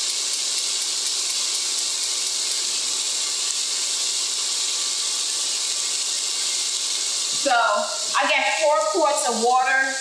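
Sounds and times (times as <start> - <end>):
sausage and onions sizzling: 0.0 - 10.0.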